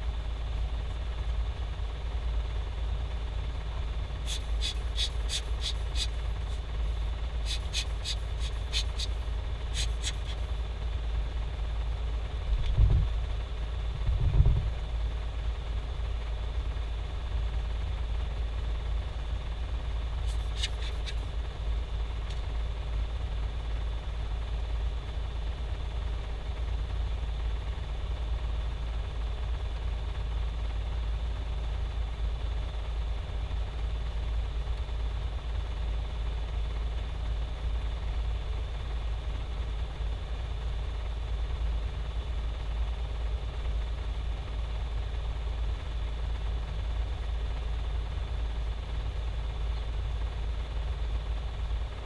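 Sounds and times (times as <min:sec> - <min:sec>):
rapid sharp clicks: 0:04.3 - 0:10.5
hard drive humming: 0:04.3 - 0:10.7.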